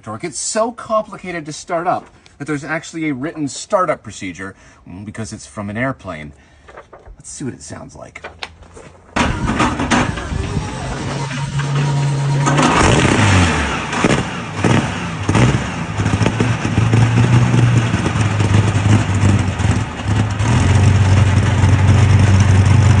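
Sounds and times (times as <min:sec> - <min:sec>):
aero engine revving: 0:09.2 - 0:23.0.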